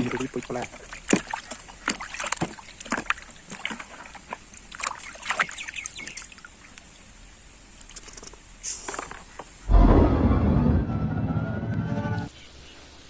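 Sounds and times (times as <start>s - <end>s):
water splashing and trickling: 0.0s - 9.6s.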